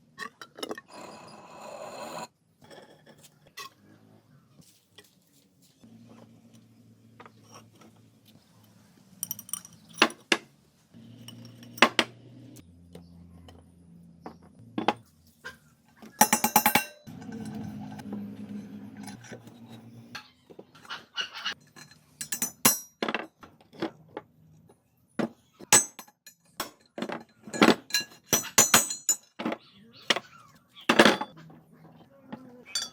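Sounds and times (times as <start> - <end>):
metal tools clinking: 9.2 - 10.4, 11.1 - 12.1, 16.1 - 20.4, 21.5 - 23.2, 25.7 - 30.2, 30.9 - 31.4, 32.6 - 32.9
rattle of strikes: 16.2 - 17.6.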